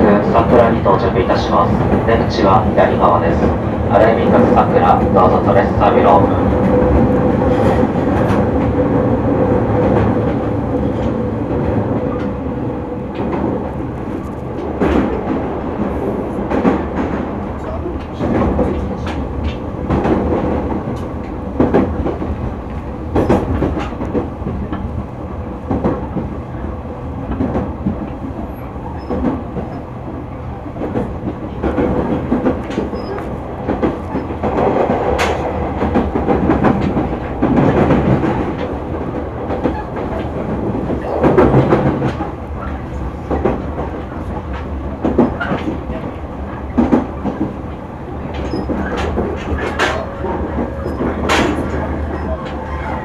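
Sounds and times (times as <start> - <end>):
train running rumble and hum: 0.0 - 53.0
wheels clacking over rail joints: 27.2 - 53.0.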